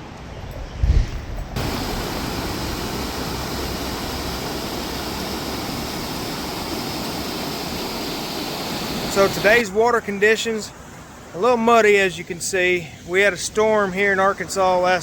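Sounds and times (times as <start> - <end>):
fast-flowing river rushing: 1.6 - 9.6.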